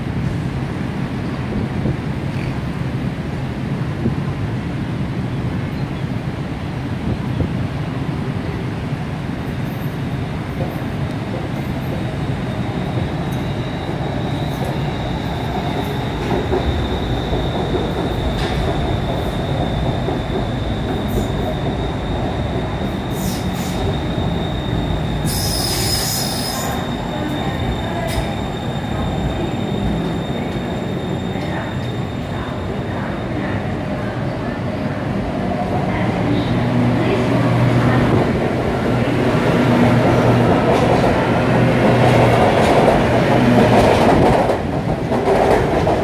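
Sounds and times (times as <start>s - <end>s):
train running rumble: 10.4s - 46.0s
high steady squeal: 12.3s - 33.4s.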